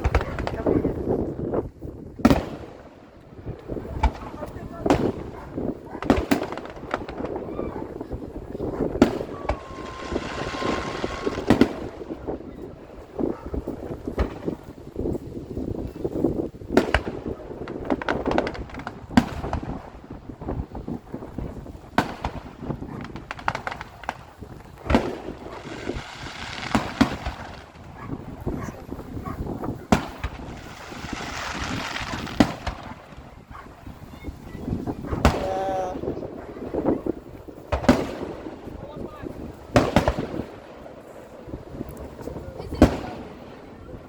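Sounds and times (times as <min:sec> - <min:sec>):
fireworks bangs: 0:00.0 - 0:44.0
whistling firework with hiss: 0:08.9 - 0:12.5, 0:24.9 - 0:27.8, 0:29.8 - 0:35.4.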